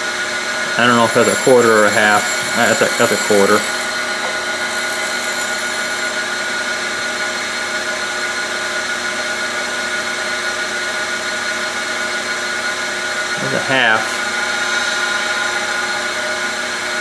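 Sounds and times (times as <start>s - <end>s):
grinder wheel whining: 0.7s - 6.5s.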